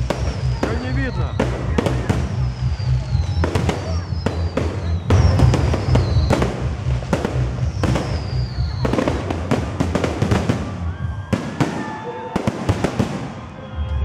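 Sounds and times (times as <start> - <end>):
firework whistles sliding down: 0.0 - 6.6
firework bangs and crackles: 0.0 - 14.0.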